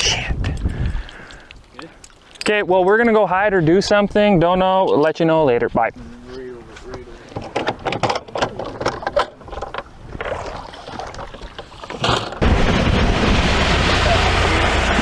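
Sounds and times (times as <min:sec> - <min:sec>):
heavy rain and wind: 0:00.0 - 0:02.9, 0:12.1 - 0:15.0
deep thunder rumble: 0:12.4 - 0:15.0.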